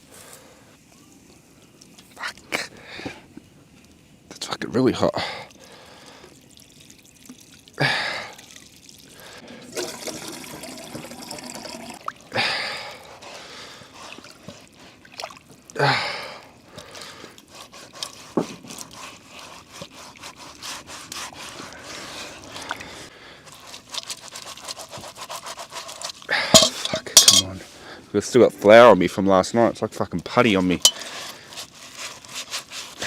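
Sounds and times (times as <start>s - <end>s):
water splashing from pot: 6.4s - 12.2s, 26.4s - 27.5s.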